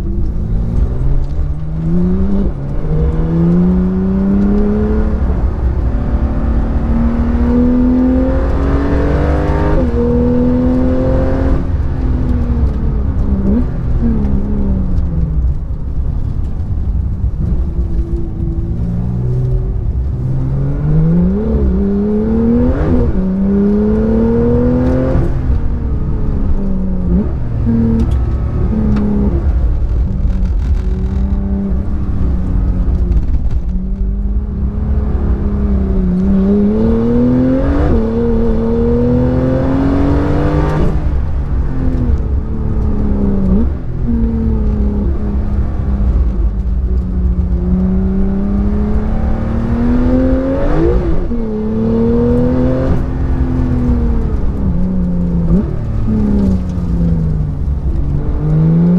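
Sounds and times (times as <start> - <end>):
car engine revving: 0.0 - 58.9
road and tyre noise: 0.0 - 58.9.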